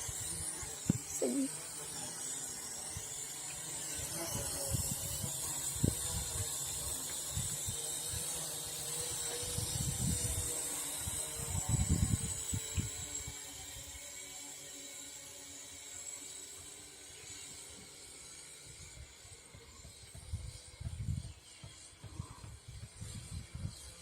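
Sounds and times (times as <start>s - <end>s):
quadcopter motors whining: 0.0s - 24.0s
wind buffeting microphone: 4.3s - 13.4s.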